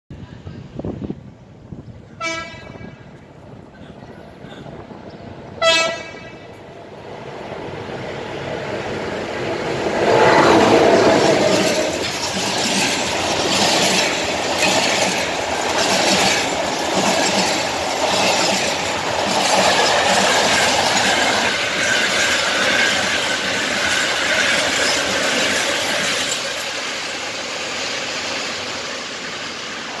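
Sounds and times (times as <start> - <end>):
electric locomotive passing: 0.2 - 30.0
train horn toot: 2.2 - 3.1, 5.6 - 6.5
wheels clickety-clack over rail joints: 3.1 - 28.9.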